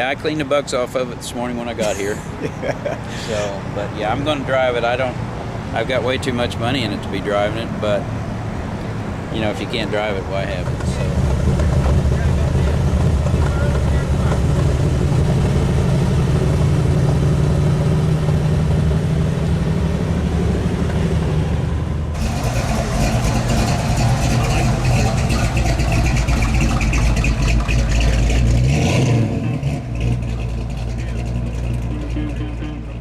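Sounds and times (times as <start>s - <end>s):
car engine idling: 0.1s - 33.0s
engine running rough with rattle: 10.5s - 33.0s.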